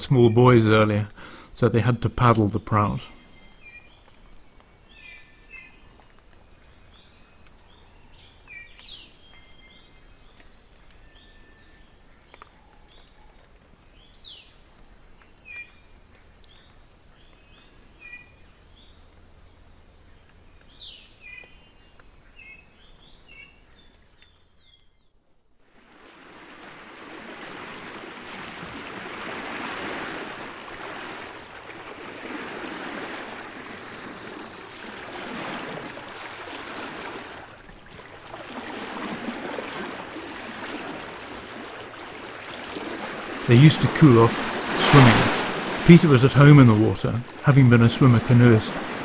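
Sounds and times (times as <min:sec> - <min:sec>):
faint steady hiss: 0:35.6 - 0:49.0.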